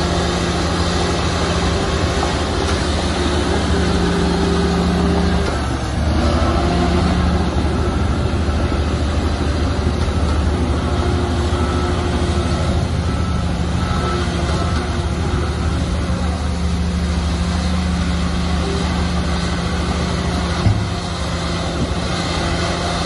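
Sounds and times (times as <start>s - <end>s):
bulldozer diesel engine running: 0.0s - 23.0s.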